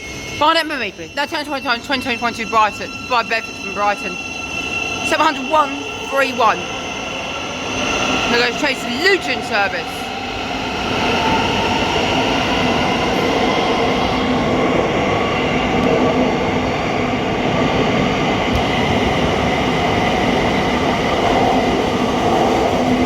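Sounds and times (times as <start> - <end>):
train motor whine: 18.5 - 23.0.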